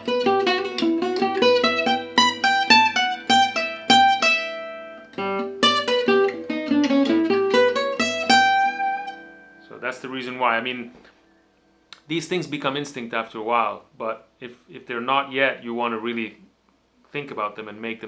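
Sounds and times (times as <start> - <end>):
acoustic guitar jazz picking: 0.0 - 11.3.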